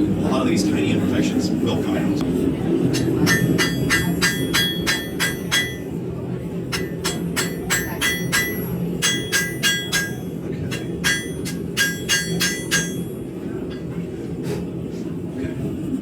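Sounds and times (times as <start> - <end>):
hammer ringing on anvil: 3.0 - 6.0, 6.7 - 13.3.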